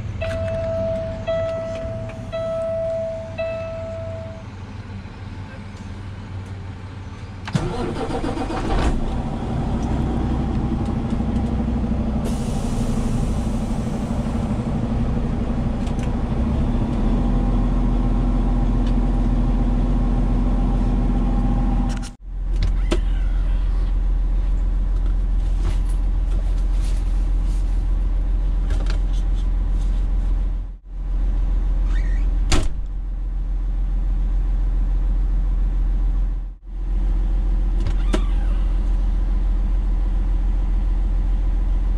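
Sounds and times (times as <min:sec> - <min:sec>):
truck engine humming: 0:00.0 - 0:22.1.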